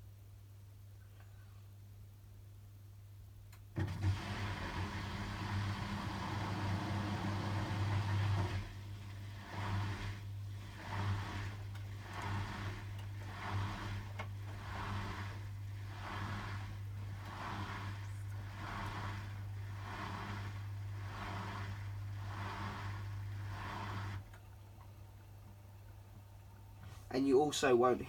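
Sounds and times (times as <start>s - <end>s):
washing machine spinning: 3.7s - 28.0s
water pumped out: 3.8s - 24.5s.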